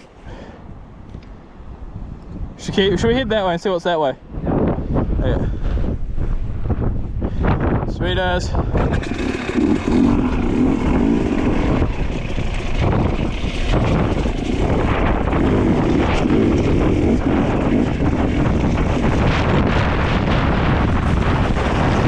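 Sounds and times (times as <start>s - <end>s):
wind buffeting microphone: 0.0s - 22.0s
dirt bike engine running: 8.7s - 22.0s.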